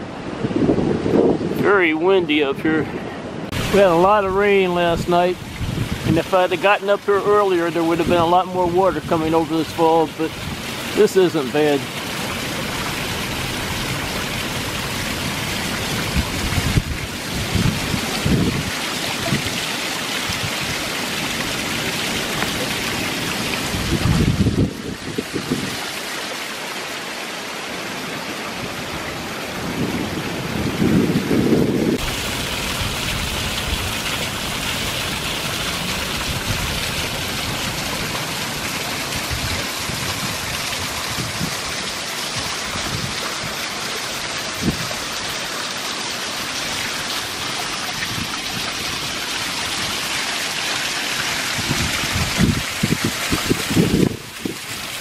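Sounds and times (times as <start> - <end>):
wind buffeting microphone: 0.0 - 6.6, 12.3 - 19.6, 20.2 - 25.8, 28.7 - 41.8, 42.4 - 43.6, 44.5 - 45.1, 47.9 - 49.1, 51.4 - 55.0
small waterfall rushing: 2.7 - 55.0.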